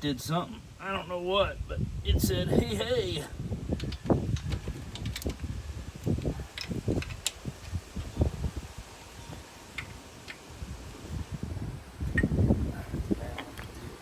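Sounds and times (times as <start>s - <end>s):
hand tools clicking and knocking: 3.8s - 5.4s, 6.0s - 8.1s
metal parts handled: 6.1s - 8.2s.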